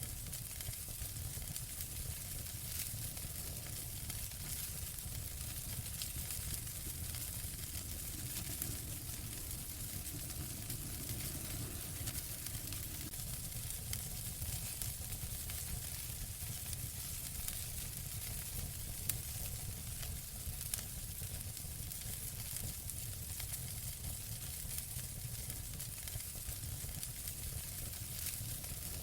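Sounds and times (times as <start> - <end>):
fire crackling: 0.0 - 29.0
fire pops: 0.4 - 17.7
low rumble: 4.8 - 13.4.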